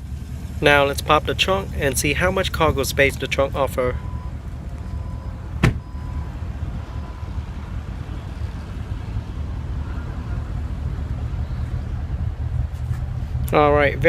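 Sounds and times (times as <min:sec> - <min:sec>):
steady low rumble: 0:00.0 - 0:14.0
trunk latch click: 0:05.6 - 0:05.8.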